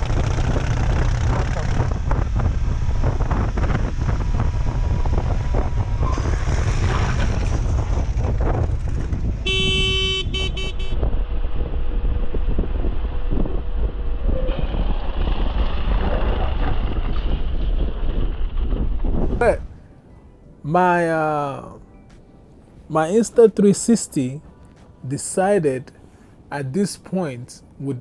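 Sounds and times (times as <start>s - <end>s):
wind and road noise: 0.0s - 28.0s
vehicle horn honking: 9.4s - 11.0s.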